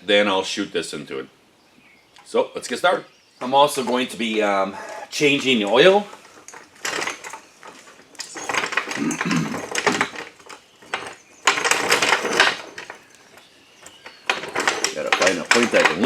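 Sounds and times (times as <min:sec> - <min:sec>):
metal tools clattering and clinking: 0:03.4 - 0:16.0.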